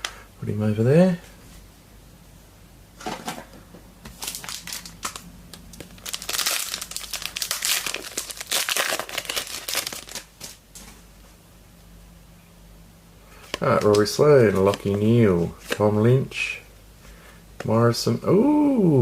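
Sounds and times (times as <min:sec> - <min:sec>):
foil wrapper crinkling and tearing: 0:04.1 - 0:10.6.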